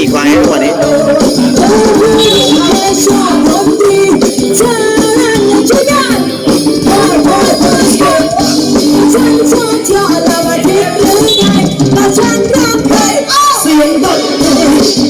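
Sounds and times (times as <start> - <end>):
person singing wavering melody: 0.0 - 14.9
steady musical accompaniment: 0.0 - 15.0.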